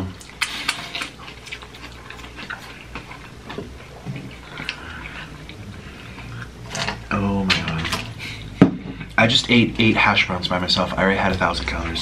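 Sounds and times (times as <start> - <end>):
low steady hum: 0.0 - 12.0
chewing with wet mouth clicks: 0.2 - 6.5.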